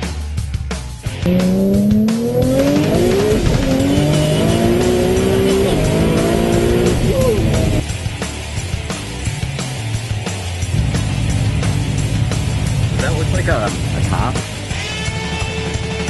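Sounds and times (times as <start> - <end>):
car engine accelerating hard: 1.1 - 7.8.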